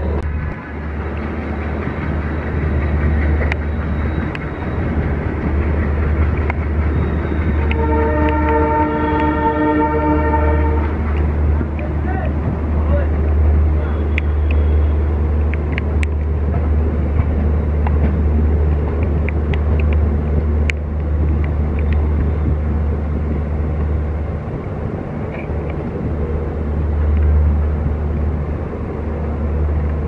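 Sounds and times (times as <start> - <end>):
wheels rumbling on rail: 0.0 - 30.0.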